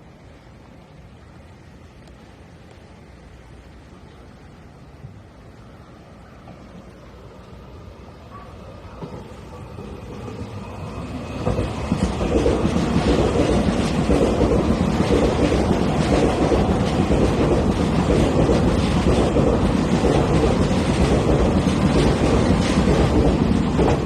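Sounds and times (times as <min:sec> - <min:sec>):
train wheels rushing on rail: 0:00.0 - 0:24.0
wheels clacking over rail joints: 0:08.9 - 0:24.0.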